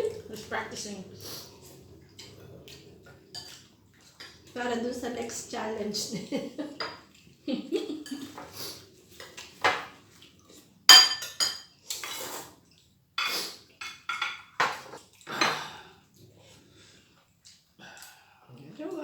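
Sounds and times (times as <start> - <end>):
cutlery clinking on plates: 6.8 - 7.1, 9.2 - 10.0, 10.9 - 12.5, 13.2 - 15.6.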